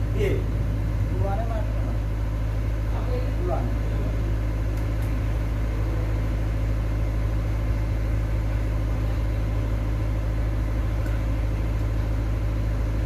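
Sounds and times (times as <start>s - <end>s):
low-pitched drone: 0.0s - 4.4s.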